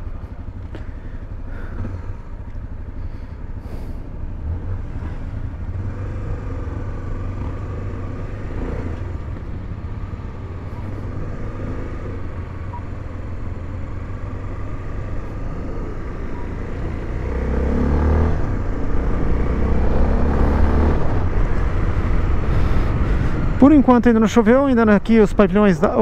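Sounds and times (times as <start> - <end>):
motorcycle engine accelerating: 1.6 - 23.6.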